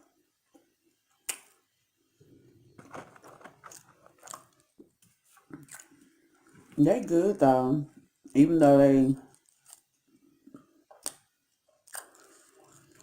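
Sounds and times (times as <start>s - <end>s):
person chewing fries: 2.9s - 6.7s, 9.2s - 13.0s.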